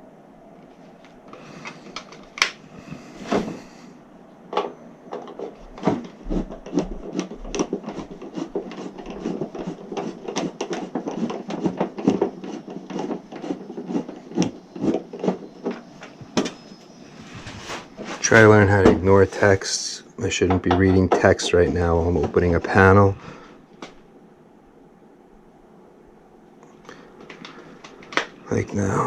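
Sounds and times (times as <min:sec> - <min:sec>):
metal panel cover clicks and knocks: 0:20.4 - 0:21.4.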